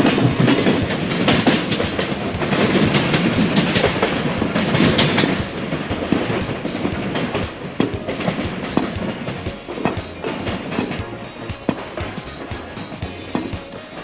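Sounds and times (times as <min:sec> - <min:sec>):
train wheels clattering over rail joints: 0:00.0 - 0:14.0.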